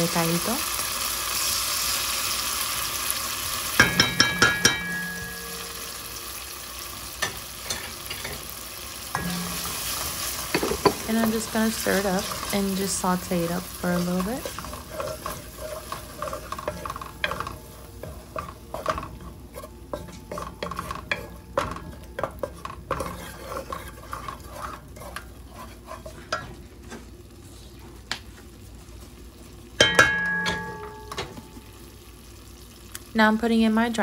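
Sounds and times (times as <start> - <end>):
food sizzling in oil: 0.0 - 34.0
spoon stirring and scraping pot: 7.2 - 8.5, 9.1 - 27.8
utensil clanking against pot: 14.0 - 26.6.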